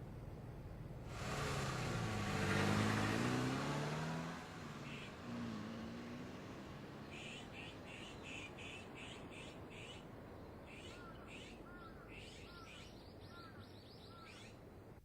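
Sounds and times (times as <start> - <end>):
background hiss: 0.0 - 11.6
lower arched bird call: 4.8 - 5.2, 7.0 - 14.6
bird chirping: 7.0 - 14.6.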